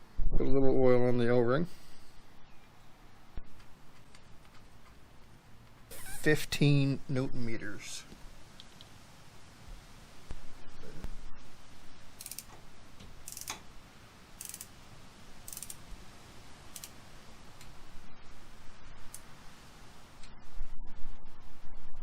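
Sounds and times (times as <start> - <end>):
ratcheting torque wrench clicking: 12.2 - 12.5, 13.2 - 13.6, 14.4 - 14.7, 15.4 - 15.8, 16.7 - 17.0.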